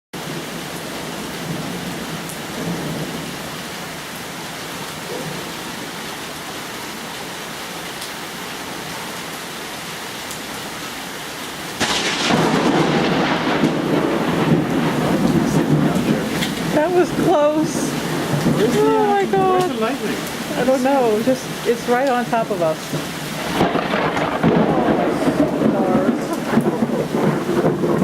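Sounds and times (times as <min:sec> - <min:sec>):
thunderclap rumbling: 0:00.2 - 0:03.5, 0:11.8 - 0:28.0
steady rain: 0:00.2 - 0:28.0.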